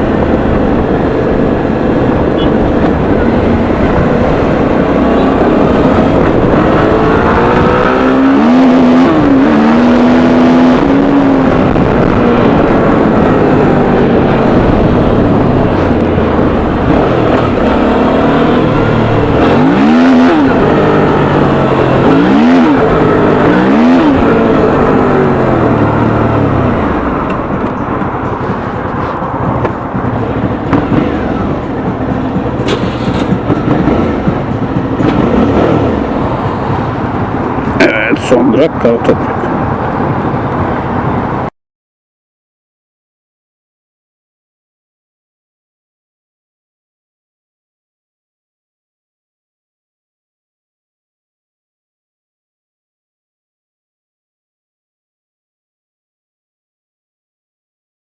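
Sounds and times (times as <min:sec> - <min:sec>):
motorcycle engine revving: 0:00.0 - 0:41.5.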